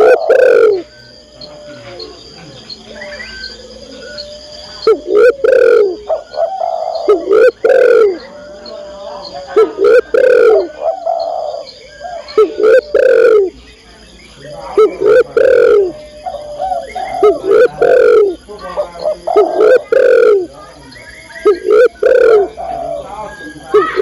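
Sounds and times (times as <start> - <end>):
dove cooing: 0.0 - 24.0.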